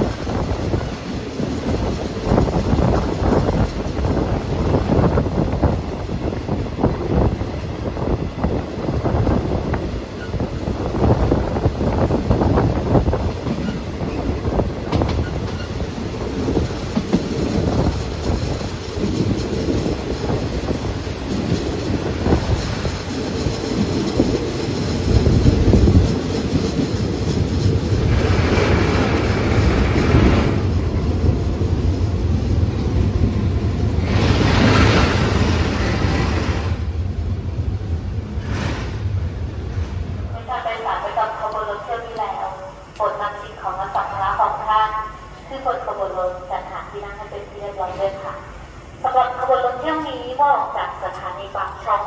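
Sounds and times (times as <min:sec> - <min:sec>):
train rumbling on track: 0:00.0 - 0:52.0.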